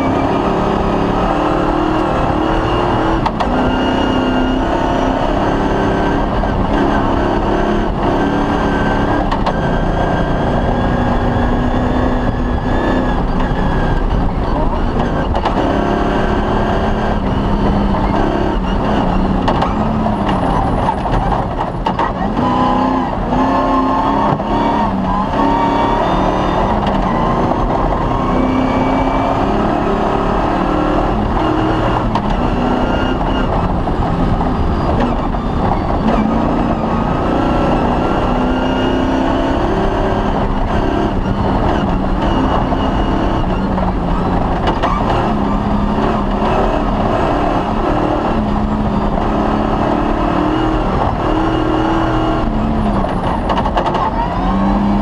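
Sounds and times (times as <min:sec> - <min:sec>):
rally car engine revving: 0:00.0 - 0:55.0
constant low rumble: 0:13.0 - 0:15.6.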